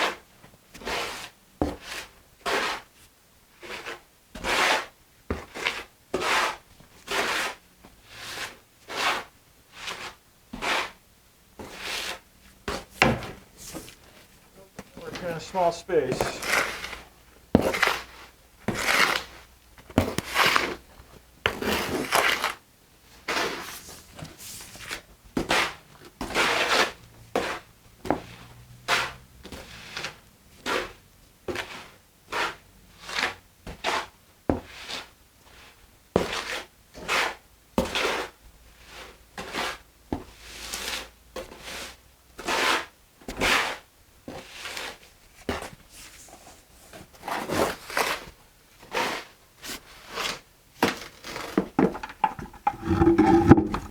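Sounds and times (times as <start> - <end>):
tool scraping wet mortar: 15.0 - 19.4, 20.0 - 20.8, 21.5 - 22.6, 50.2 - 53.9.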